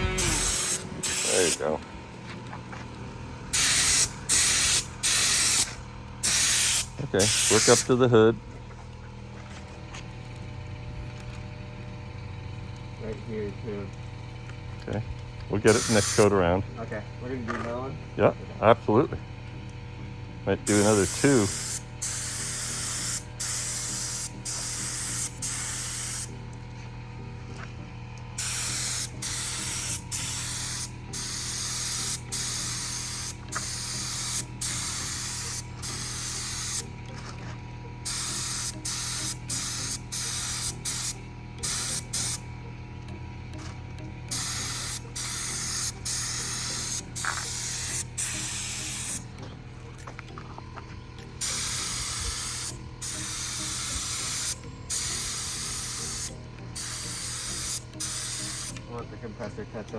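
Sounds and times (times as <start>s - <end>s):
paint spray gun hissing: 0.0s - 1.7s, 3.5s - 7.9s, 15.7s - 16.3s, 20.7s - 26.4s, 28.4s - 36.9s, 38.0s - 42.4s, 44.3s - 49.2s, 51.4s - 58.8s
steady low hum: 0.0s - 59.9s.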